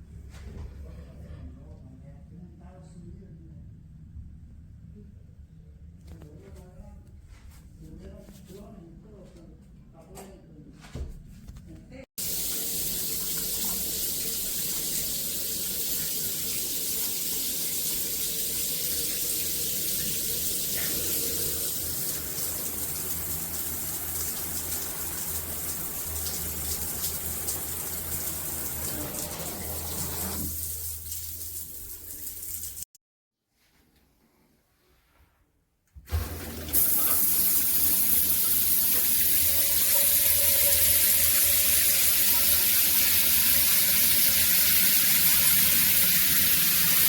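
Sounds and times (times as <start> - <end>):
shower water spraying: 12.2 - 32.9, 36.1 - 47.0.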